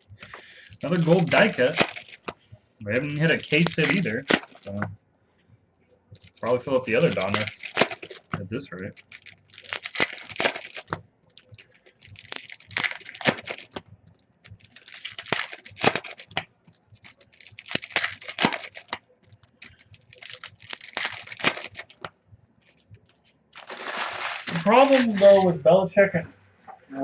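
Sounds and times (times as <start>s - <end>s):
wrappers crinkling: 0.0s - 4.8s, 6.2s - 25.6s
foil card packs tearing: 0.2s - 2.3s, 2.9s - 4.8s, 6.2s - 13.8s, 14.5s - 22.0s, 23.6s - 25.5s.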